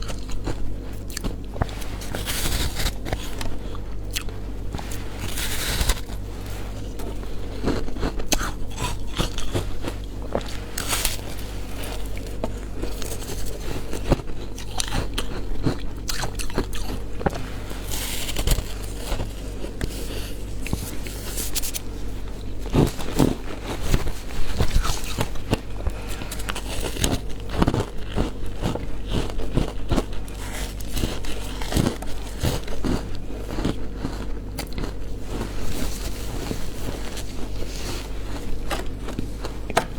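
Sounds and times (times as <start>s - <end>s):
frozen ice being chewed: 0.0s - 39.9s
steady low hum: 0.0s - 39.9s.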